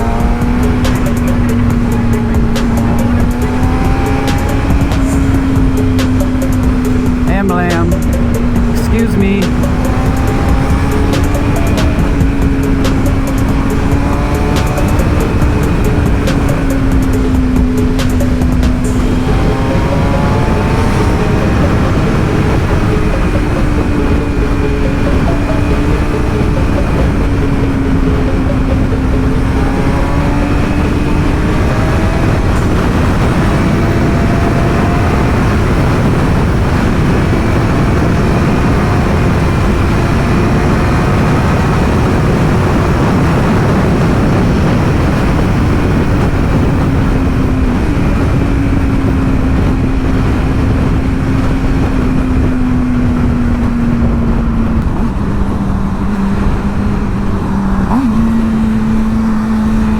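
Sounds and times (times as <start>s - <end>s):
motorcycle engine drone: 0.0s - 59.9s
wind noise: 0.0s - 59.9s.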